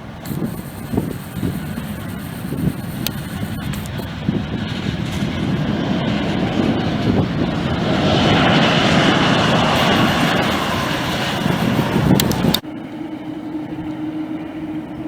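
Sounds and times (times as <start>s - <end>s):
jet engines rushing: 0.0s - 15.0s
faint high whine: 0.2s - 4.2s, 9.6s - 14.3s.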